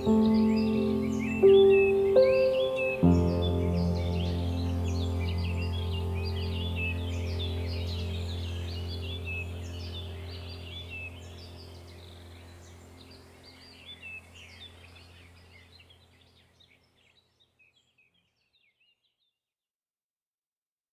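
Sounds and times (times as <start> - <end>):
birds chirping: 0.0 - 19.0
steady low hum: 3.1 - 16.4.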